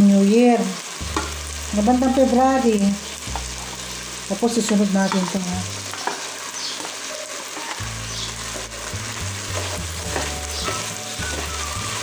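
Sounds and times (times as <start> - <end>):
food sizzling in oil: 0.0 - 12.0
utensil scraping pot: 4.7 - 12.0.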